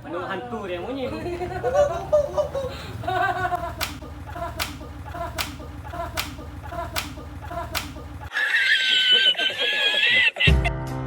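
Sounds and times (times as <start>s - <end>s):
sharp claps or slaps: 3.8s - 8.0s.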